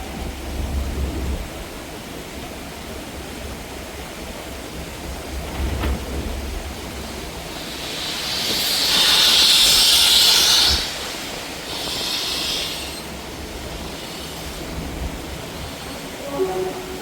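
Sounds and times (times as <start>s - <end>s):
steam hissing: 6.7s - 16.3s.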